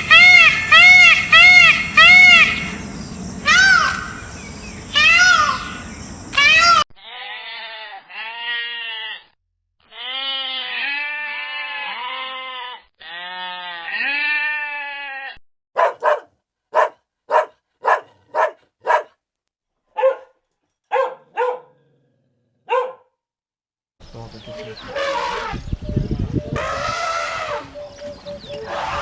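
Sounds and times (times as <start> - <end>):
wavering bleats: 6.6 - 15.4
dog barking: 15.8 - 19.2, 20.0 - 21.8, 22.6 - 23.1.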